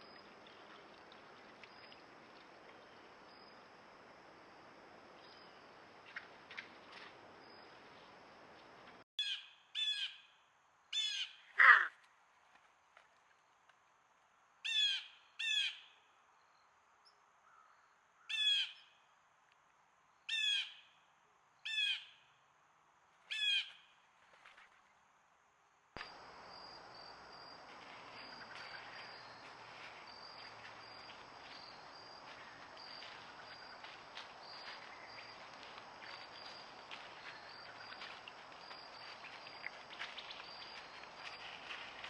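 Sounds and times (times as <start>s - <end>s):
faint high insect trill: 0.0s - 9.0s, 26.0s - 42.0s
steady outdoor hiss: 0.0s - 42.0s
bird giving harsh calls: 11.0s - 11.9s.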